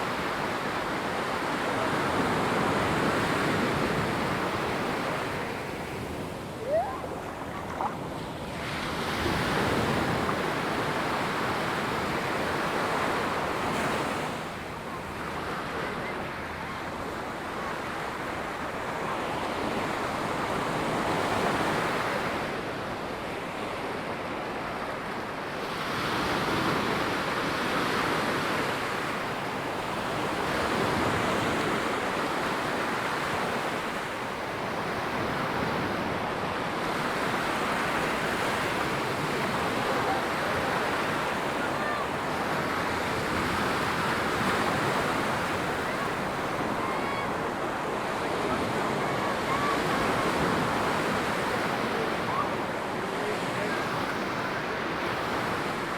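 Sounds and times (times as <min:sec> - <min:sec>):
ocean waves breaking on beach: 0:00.0 - 0:55.9.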